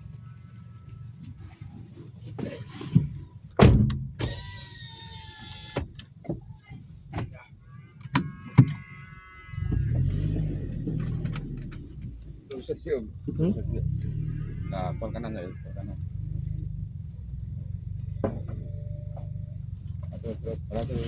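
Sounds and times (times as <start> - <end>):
knocks and thuds: 2.9 - 4.2, 18.1 - 19.4
drawn-out squeaking whines: 4.2 - 6.3, 7.6 - 21.0
low rumble: 9.6 - 21.0.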